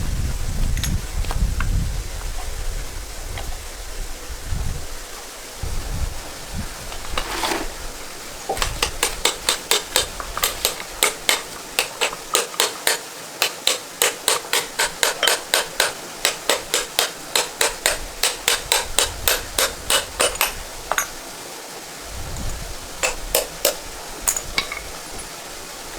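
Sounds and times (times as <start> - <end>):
hammer blows: 8.6 - 21.1.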